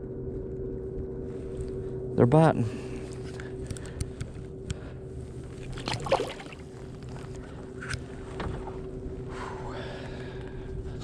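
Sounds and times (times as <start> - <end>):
steady low hum: 0.0 - 11.0
water lapping: 5.6 - 6.9.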